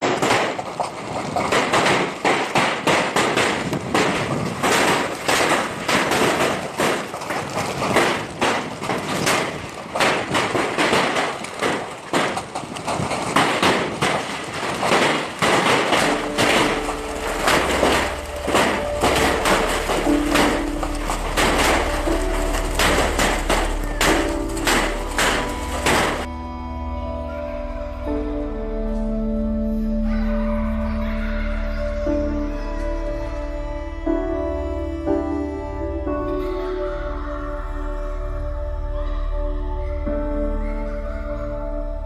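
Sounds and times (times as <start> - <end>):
hailstones pelting hard surfaces: 0.0 - 26.3.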